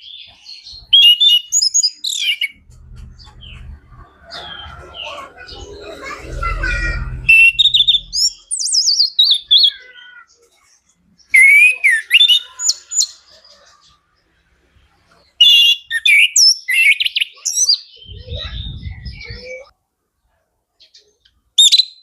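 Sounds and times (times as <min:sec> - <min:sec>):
thrush singing: 0:02.2 - 0:09.7
low rumble: 0:02.5 - 0:08.6.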